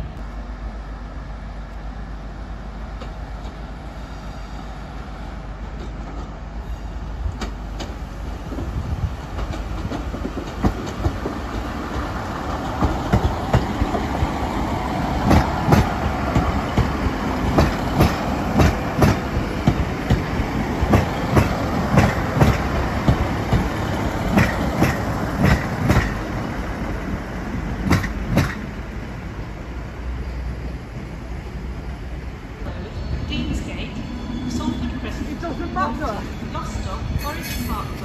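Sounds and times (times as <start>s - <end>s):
train engines rumbling: 0.0s - 38.0s
train wheels clicking over joints: 7.2s - 28.8s.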